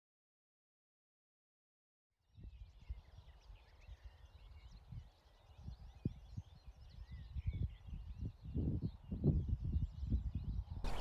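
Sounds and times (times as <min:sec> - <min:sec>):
songbirds singing and chirping: 0:02.9 - 0:11.0.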